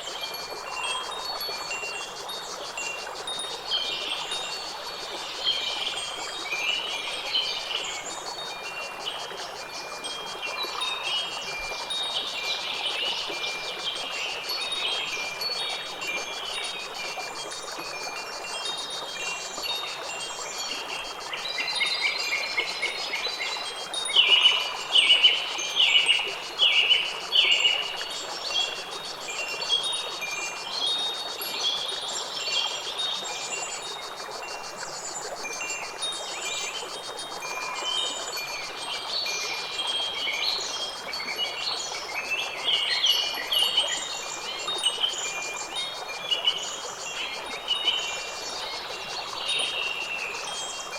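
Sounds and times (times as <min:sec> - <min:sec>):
wind chimes tinkling: 0:00.0 - 0:04.6, 0:09.7 - 0:26.4.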